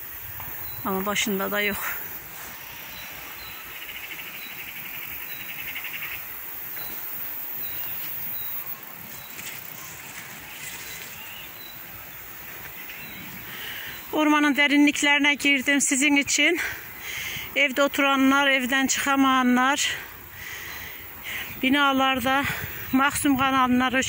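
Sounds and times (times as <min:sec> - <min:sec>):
faint bird chirps: 0:00.3 - 0:14.2.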